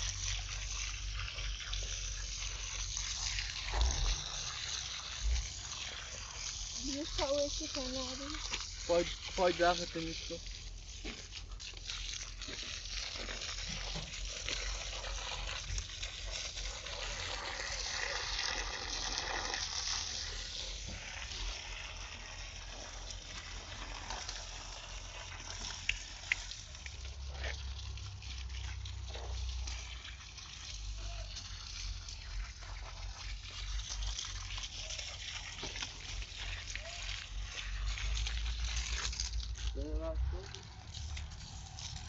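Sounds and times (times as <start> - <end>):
water pouring and splashing: 0.0 - 42.0.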